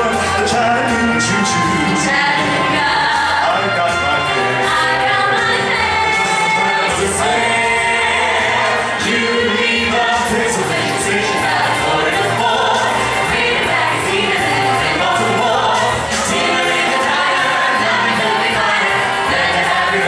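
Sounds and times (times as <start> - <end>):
vocal group singing in harmony: 0.0 - 20.0.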